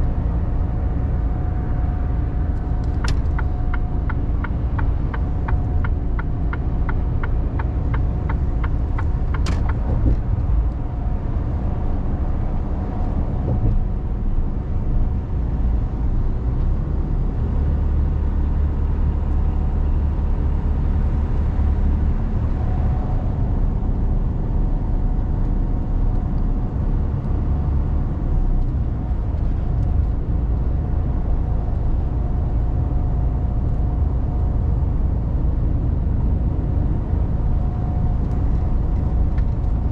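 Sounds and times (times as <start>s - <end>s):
truck engine and road rumble: 0.0s - 39.9s.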